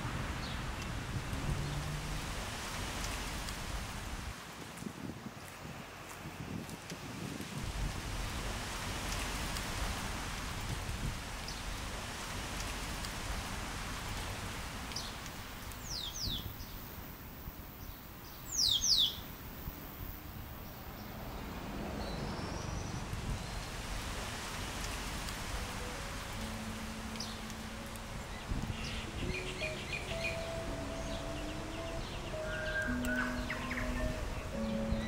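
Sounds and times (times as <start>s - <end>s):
steady rustling hiss: 0.0s - 35.0s
bird whistling and chirping: 18.6s - 19.2s, 28.3s - 35.0s.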